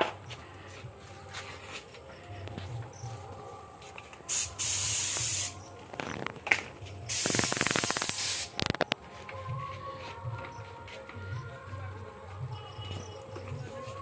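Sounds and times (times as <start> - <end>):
hissing spray: 4.3 - 5.8, 7.1 - 8.8.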